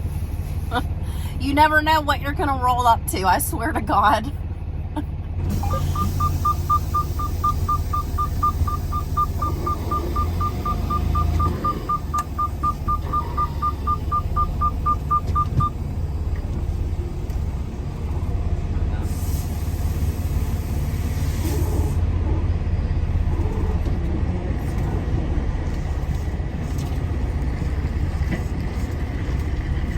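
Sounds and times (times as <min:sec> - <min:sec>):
truck engine rumbling: 0:00.0 - 0:29.9
rapid electronic beeping: 0:05.6 - 0:15.8.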